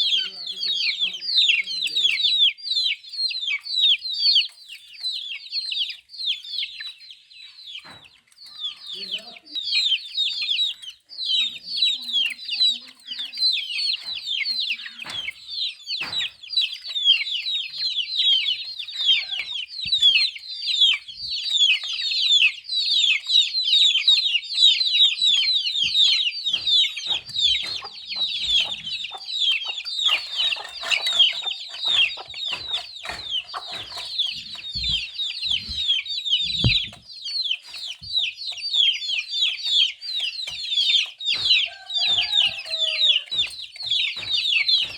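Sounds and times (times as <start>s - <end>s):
chicks peeping: 0.0s - 44.9s.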